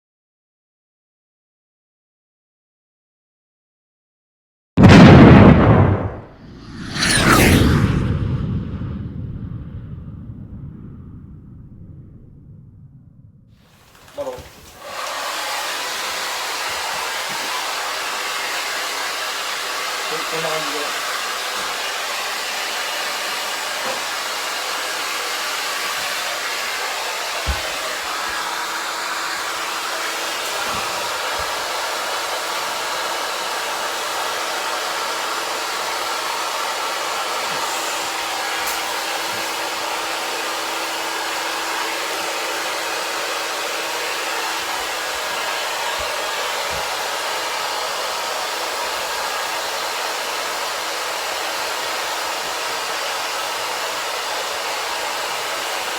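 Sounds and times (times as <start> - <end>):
low thump: 4.8 - 13.5
hair dryer blowing: 13.8 - 55.9.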